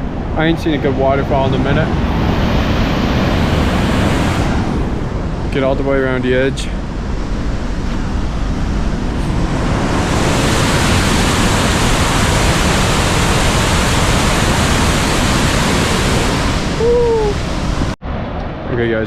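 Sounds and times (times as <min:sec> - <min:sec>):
waterfall roaring: 0:07.9 - 0:18.0
brief falling vocal sound: 0:16.8 - 0:17.4.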